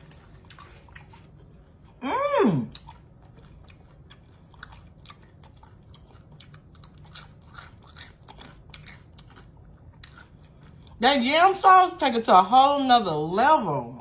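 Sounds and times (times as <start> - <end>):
person crunching fried food: 2.7 - 11.0.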